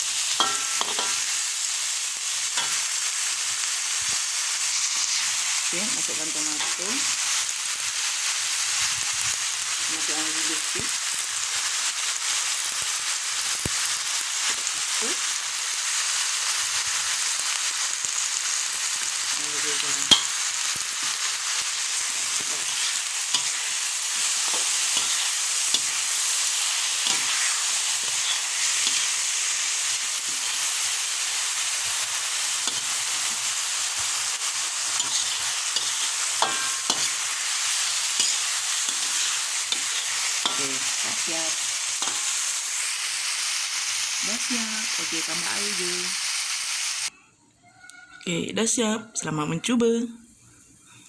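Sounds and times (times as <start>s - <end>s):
spatula scraping a pan: 0.0s - 1.7s, 4.1s - 5.6s, 15.9s - 42.9s
vegetables sizzling in a pan: 0.0s - 47.1s.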